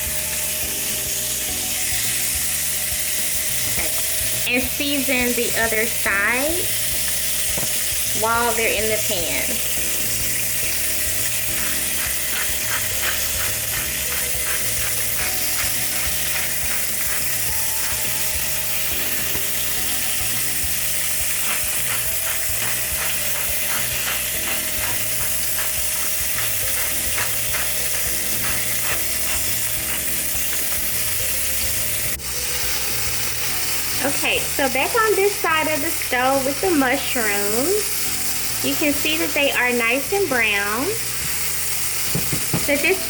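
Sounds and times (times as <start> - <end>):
chicken sizzling in a grill pan: 0.0 - 43.0
rapid clicking: 6.7 - 37.1.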